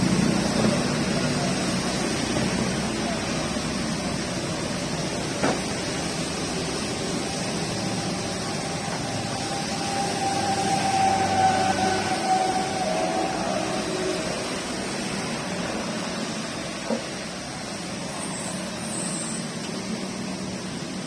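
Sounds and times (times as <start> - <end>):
steady rain hissing: 0.0 - 21.0.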